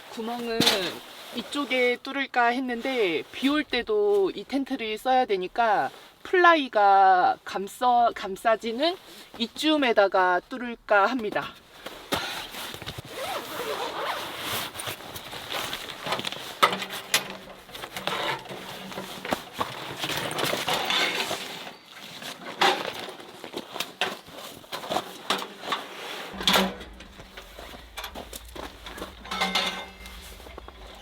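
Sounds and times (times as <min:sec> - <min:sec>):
rustling: 0:00.0 - 0:10.5, 0:11.2 - 0:31.0
camping gear clicking and knocking: 0:11.3 - 0:31.0
light metallic clinks: 0:26.4 - 0:31.0.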